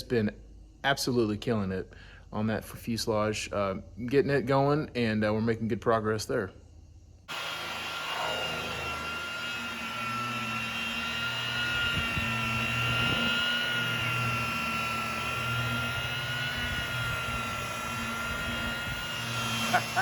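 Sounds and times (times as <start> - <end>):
electric polisher whining: 7.3 - 20.0.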